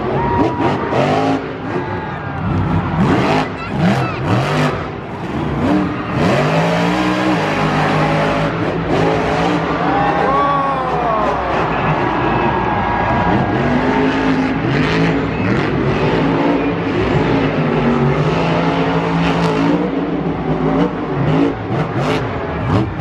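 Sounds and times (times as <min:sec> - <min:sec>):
monster truck engines revving: 0:00.0 - 0:23.0.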